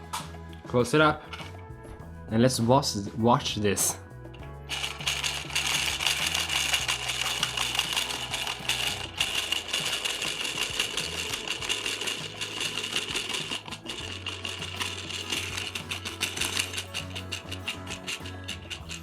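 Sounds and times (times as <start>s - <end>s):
toy washing machine whirring: 4.6s - 19.0s.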